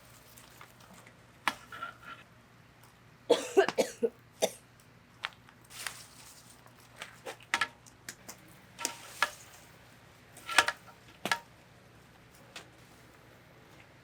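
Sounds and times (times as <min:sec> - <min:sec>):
small hard objects clinking: 0:08.8 - 0:09.8, 0:10.4 - 0:11.5.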